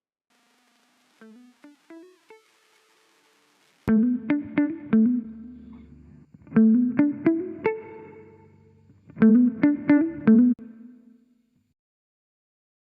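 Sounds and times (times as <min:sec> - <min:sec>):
plucked guitar phrases: 0:03.9 - 0:11.0.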